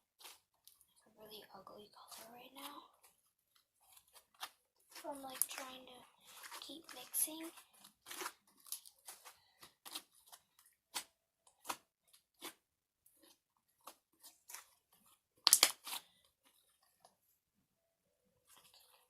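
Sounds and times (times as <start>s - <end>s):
slime crackling and popping: 15.4s - 16.0s.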